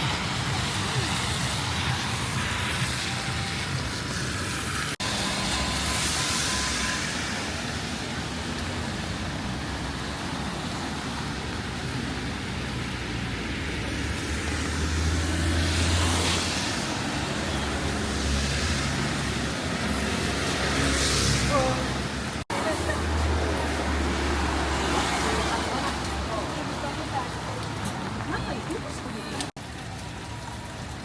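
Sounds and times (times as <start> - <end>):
traffic hiss on wet street: 0.0 - 31.0
vehicle passing: 12.1 - 29.5.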